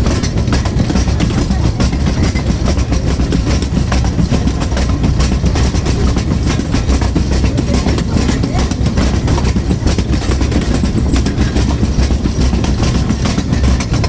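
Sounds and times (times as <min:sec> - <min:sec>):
small train rumbling on track: 0:00.0 - 0:14.0
wheels clicking and rattling: 0:00.0 - 0:14.0.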